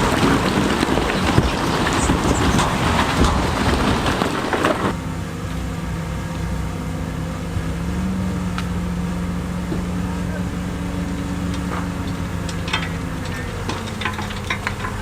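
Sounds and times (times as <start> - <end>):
machinery clattering on stone: 0.0 - 5.0, 11.0 - 15.0
diesel engine hum: 0.0 - 15.0.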